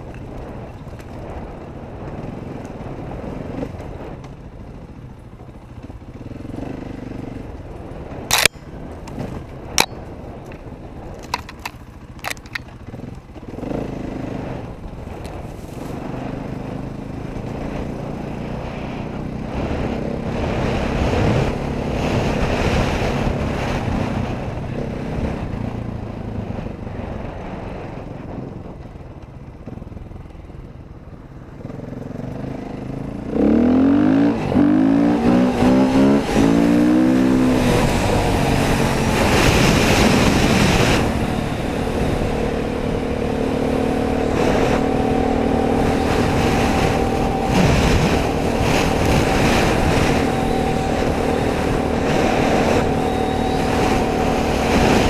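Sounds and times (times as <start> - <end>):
dirt bike engine revving: 11.2 - 14.7, 15.8 - 24.4, 31.6 - 55.0.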